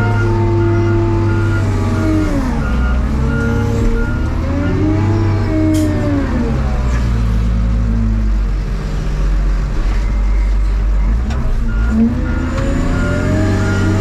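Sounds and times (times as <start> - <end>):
reversing alarm beeping: 0.0 - 5.8, 10.0 - 14.0
diesel engine revving: 0.0 - 14.0.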